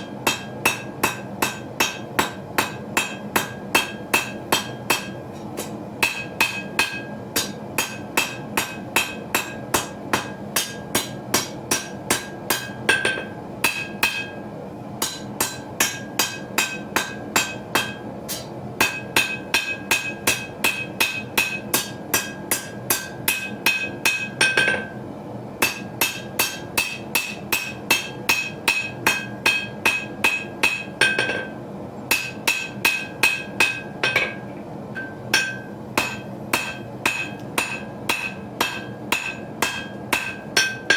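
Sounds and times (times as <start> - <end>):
hammer blows on anvil: 32.1 - 40.9
anvil ringing: 35.0 - 40.9.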